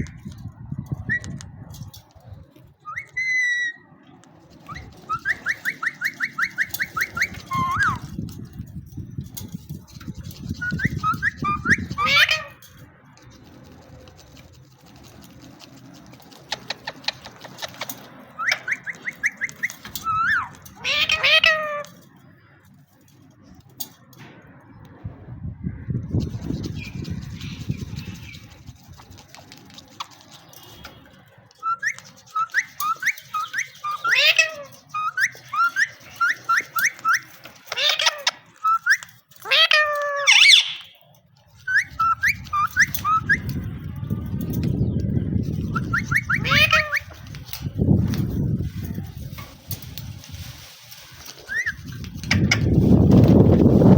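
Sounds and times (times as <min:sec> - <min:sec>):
parrot whistle: 0:02.8 - 0:03.8, 0:04.7 - 0:08.0, 0:10.6 - 0:12.5, 0:31.6 - 0:37.2, 0:37.8 - 0:41.0, 0:41.6 - 0:43.6, 0:45.7 - 0:47.2, 0:51.5 - 0:51.9
parrot clicks and chirps: 0:02.9 - 0:08.2, 0:14.5 - 0:22.3, 0:29.3 - 0:43.8.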